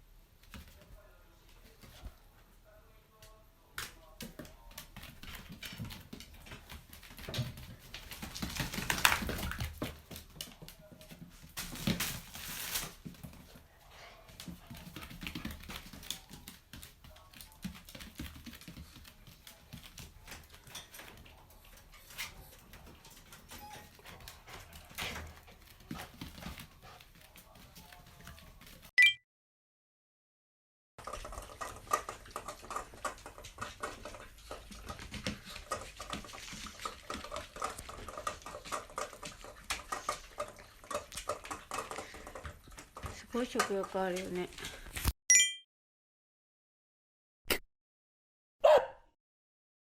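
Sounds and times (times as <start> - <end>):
dog claws clicking and tapping: 31.0 - 44.3.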